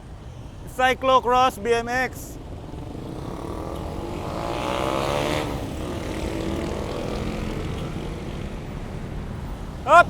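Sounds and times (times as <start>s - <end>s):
wind and road rush: 0.0s - 10.0s
vehicle engine passing: 1.9s - 9.8s.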